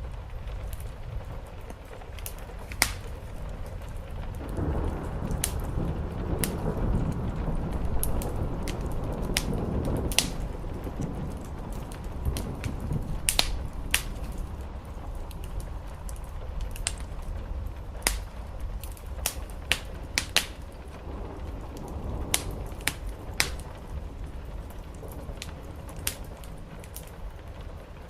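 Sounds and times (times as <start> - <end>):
steady low rumble: 0.0 - 28.0
wood fire crackling and popping: 0.0 - 28.0.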